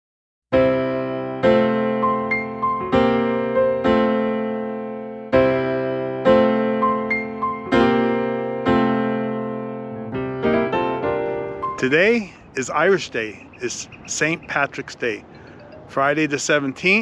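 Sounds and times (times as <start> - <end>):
electric piano chords: 0.5 - 12.2.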